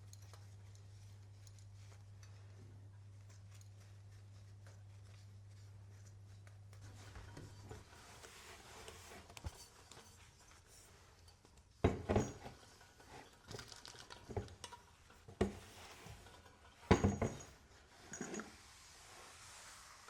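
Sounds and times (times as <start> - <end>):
objects knocking and clinking: 11.8 - 14.8, 15.4 - 18.5
objects clattering: 11.8 - 18.6.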